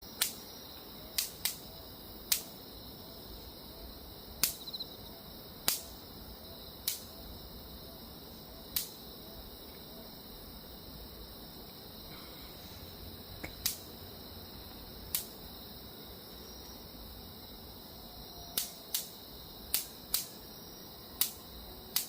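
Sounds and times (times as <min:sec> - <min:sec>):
mosquito zapper cracks: 0:01.2 - 0:01.7, 0:04.4 - 0:04.6, 0:05.6 - 0:05.9, 0:06.8 - 0:07.1, 0:13.5 - 0:13.9, 0:15.1 - 0:15.4, 0:18.6 - 0:20.4, 0:21.2 - 0:22.0.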